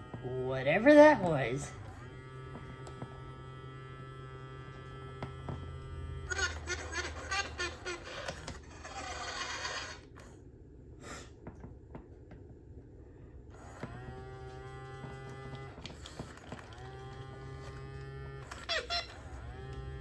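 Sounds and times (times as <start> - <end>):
toy motor low drone: 0.0 - 10.4, 13.6 - 20.0
toy hissing rush: 6.3 - 10.4.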